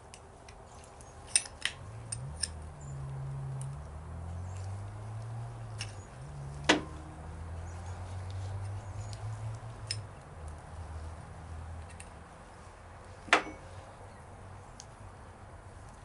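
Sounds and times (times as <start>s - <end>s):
small metal clicks: 0.0s - 7.0s, 8.2s - 10.7s, 11.8s - 12.2s
sharp metal clink: 13.3s - 13.7s.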